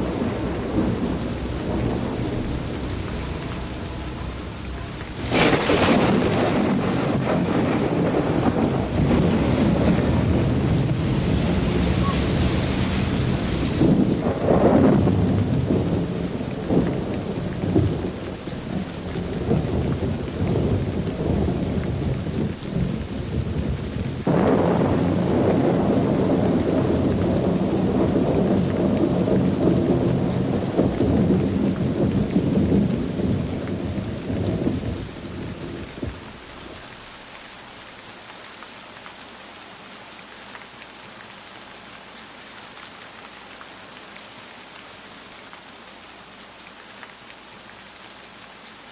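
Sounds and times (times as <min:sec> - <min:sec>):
rolling thunder: 0:00.0 - 0:36.8
steady rain: 0:00.0 - 0:48.9.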